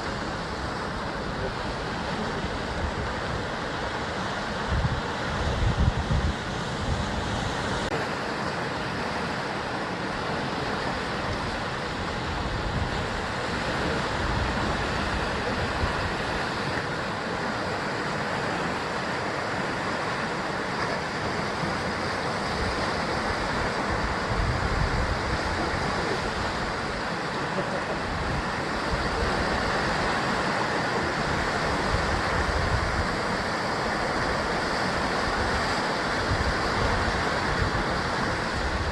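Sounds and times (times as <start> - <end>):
wind buffeting microphone: 0.0 - 8.0, 11.0 - 17.5, 21.1 - 27.2, 28.0 - 38.9
sea surf against cliffs: 0.0 - 38.9.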